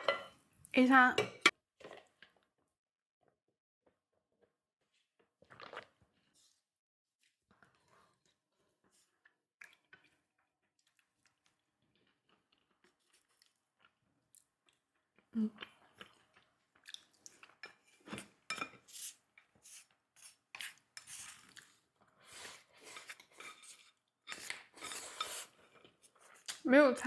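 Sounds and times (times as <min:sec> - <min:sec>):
chewing: 0:09.0 - 0:17.8
utensils clinking and scraping dishes: 0:22.8 - 0:25.5.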